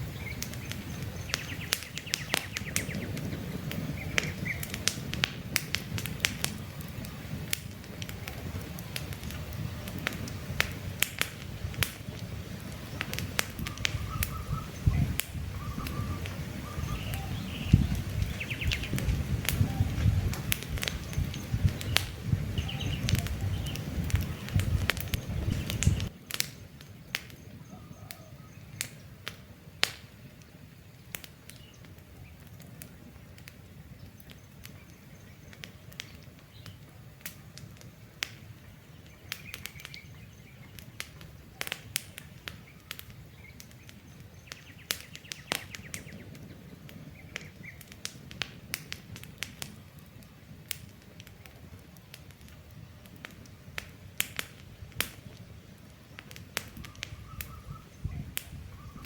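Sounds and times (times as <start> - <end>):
campfire crackling and popping: 0.0 - 59.0
faint bird chirps: 12.8 - 20.2, 20.9 - 26.1, 27.0 - 29.2, 56.8 - 59.0.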